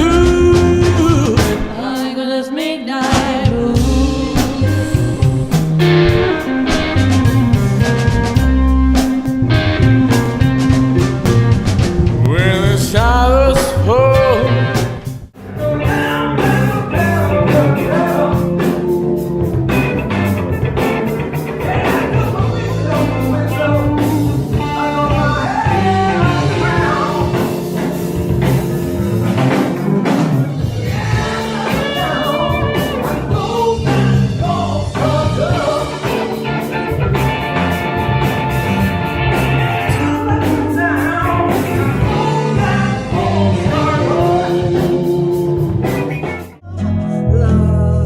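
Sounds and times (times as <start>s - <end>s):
drum kit: 0.0s - 2.1s, 3.0s - 46.6s
electric guitar: 0.0s - 2.1s, 3.1s - 48.0s
person singing: 0.0s - 8.0s, 12.2s - 14.8s, 15.5s - 19.8s, 21.6s - 28.0s, 30.6s - 37.4s, 39.3s - 48.0s.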